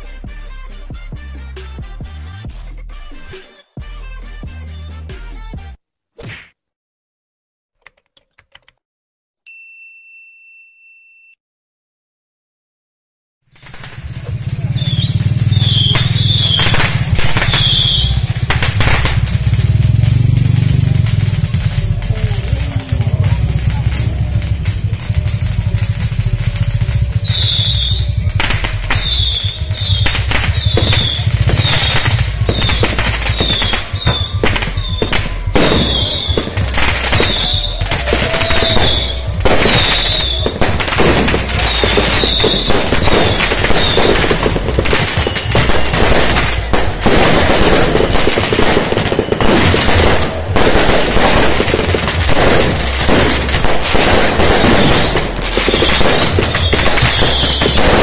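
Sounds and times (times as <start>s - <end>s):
firecrackers banging: 13.5s - 58.0s
steady low rumble: 13.9s - 43.6s, 49.8s - 56.5s
short high whistles: 27.2s - 28.2s.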